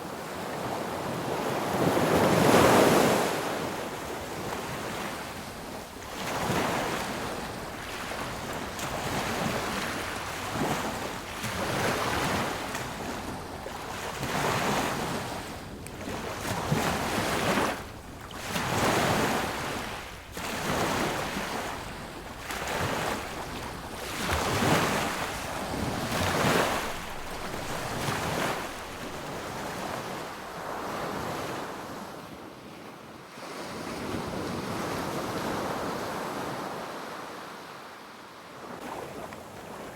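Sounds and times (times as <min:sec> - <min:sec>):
sea waves washing onto beach: 0:00.6 - 0:31.9.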